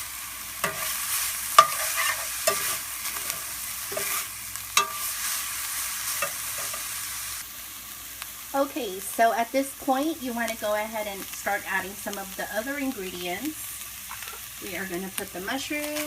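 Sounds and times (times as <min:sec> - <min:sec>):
meat sizzling in a skillet: 0:00.0 - 0:16.0
utensil scraping a pan: 0:00.6 - 0:05.5, 0:06.1 - 0:06.9, 0:14.1 - 0:14.5.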